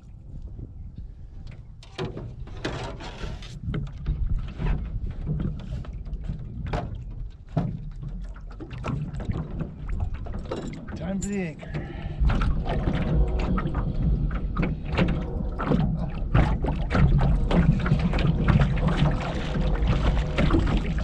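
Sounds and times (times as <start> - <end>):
wind rumble on microphone: 0.0 - 21.0
knocks on rowboat: 1.8 - 8.0, 8.7 - 21.0
water splashing: 5.2 - 21.0.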